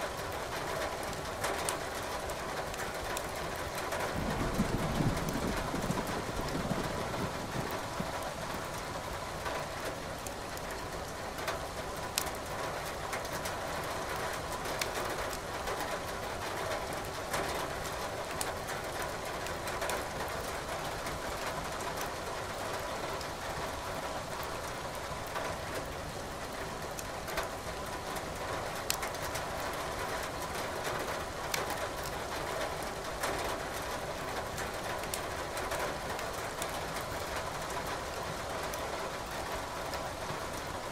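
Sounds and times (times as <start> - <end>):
steady rain hiss: 0.0 - 40.9
wood fire crackling: 28.8 - 29.3.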